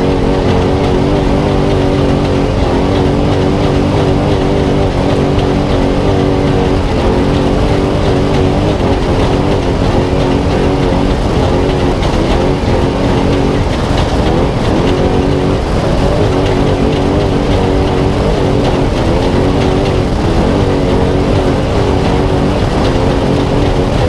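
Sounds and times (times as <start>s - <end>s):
truck engine running under load: 0.0s - 24.0s.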